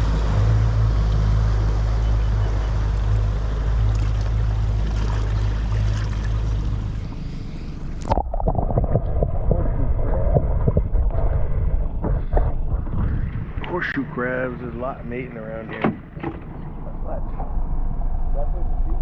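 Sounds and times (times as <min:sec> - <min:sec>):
water splashing: 0:00.0 - 0:06.9, 0:08.0 - 0:14.0
boat motor running: 0:00.0 - 0:19.0
wind: 0:00.0 - 0:19.0.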